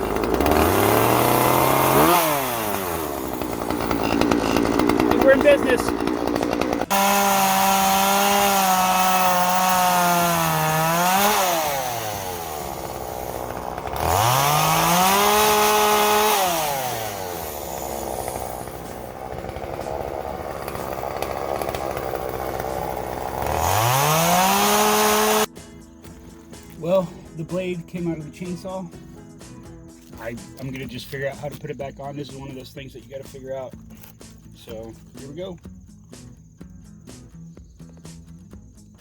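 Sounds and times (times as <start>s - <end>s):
chainsaw revving and idling: 0.0s - 25.6s.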